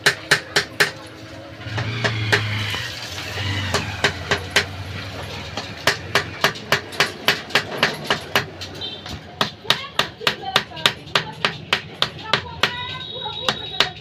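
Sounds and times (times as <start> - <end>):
hammer striking metal: 0.0 - 1.1, 3.7 - 4.8, 5.4 - 14.0.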